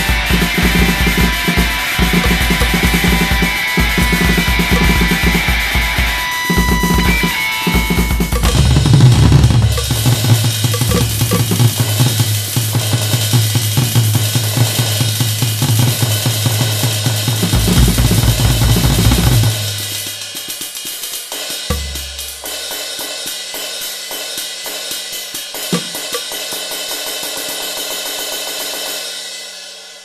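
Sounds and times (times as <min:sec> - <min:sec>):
drum kit with cymbals: 0:00.0 - 0:30.0
heavy low bass notes: 0:08.3 - 0:12.0.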